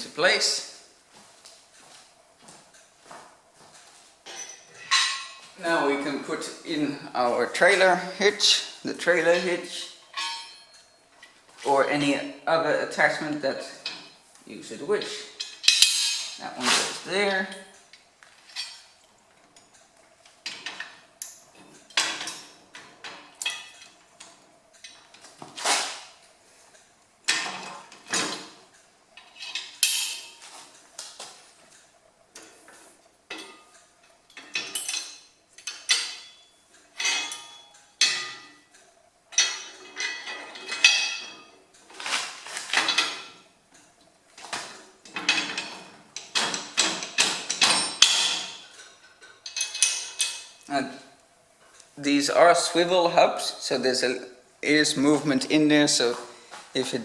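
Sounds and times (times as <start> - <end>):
metal parts clanking: 4.3 - 5.5, 9.2 - 11.4, 15.0 - 17.0, 29.2 - 30.6, 33.3 - 38.7, 39.3 - 43.5, 44.6 - 50.7.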